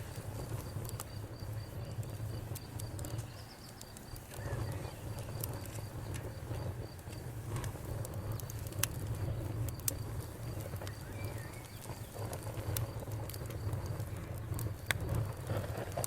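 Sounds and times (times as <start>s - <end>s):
campfire crackling: 0.0s - 16.0s
bird call: 10.9s - 12.0s.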